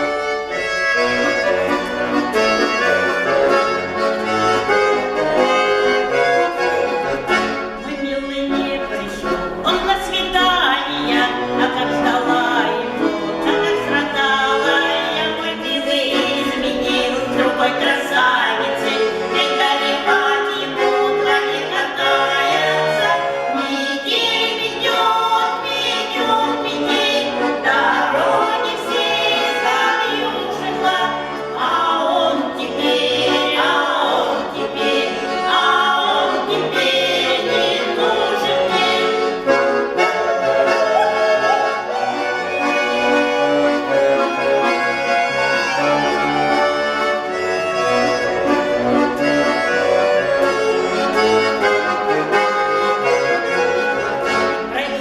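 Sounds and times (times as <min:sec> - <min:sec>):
vocal group singing: 0:00.0 - 0:05.6, 0:06.2 - 0:42.9
instrumental accompaniment: 0:00.0 - 0:55.0.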